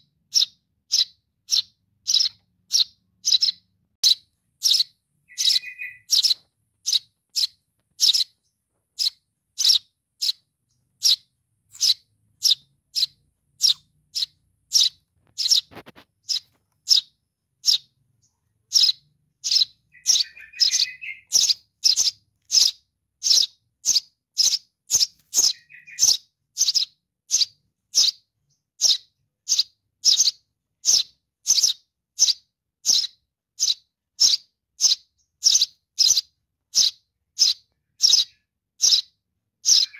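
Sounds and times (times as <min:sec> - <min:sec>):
sparrow chick chirping: 0:00.0 - 0:39.9
lower warbling calls: 0:04.8 - 0:06.1.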